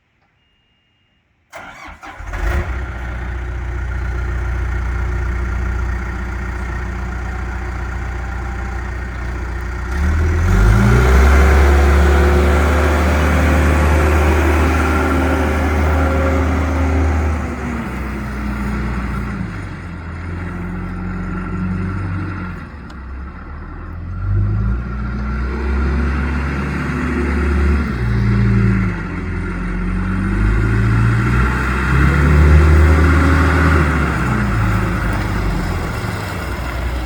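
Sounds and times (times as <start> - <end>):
backhoe diesel engine starting and idling: 1.5 - 37.0.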